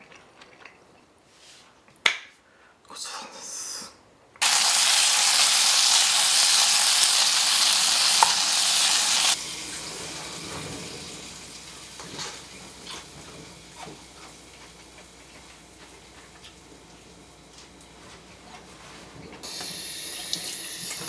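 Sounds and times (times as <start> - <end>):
meat sizzling in a hot pan: 4.4 - 12.8, 19.4 - 21.0.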